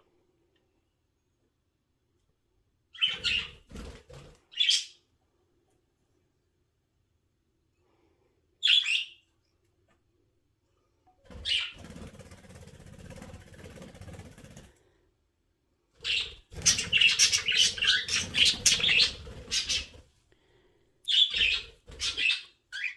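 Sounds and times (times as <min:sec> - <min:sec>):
birds chirping: 0:11.3 - 0:11.8, 0:16.0 - 0:20.0, 0:21.1 - 0:22.9
bird wings flapping: 0:11.3 - 0:14.8.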